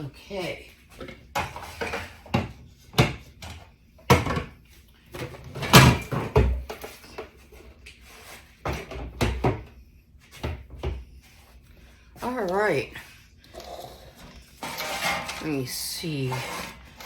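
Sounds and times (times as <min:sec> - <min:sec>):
kitchen knocks and clunks: 0:00.9 - 0:07.4, 0:08.6 - 0:09.7, 0:10.3 - 0:11.0.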